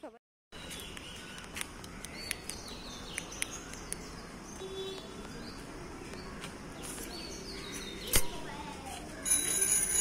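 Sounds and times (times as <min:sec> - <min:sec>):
outdoor background noise: 0:00.0 - 0:10.0
birds chirping and calling: 0:00.6 - 0:09.5.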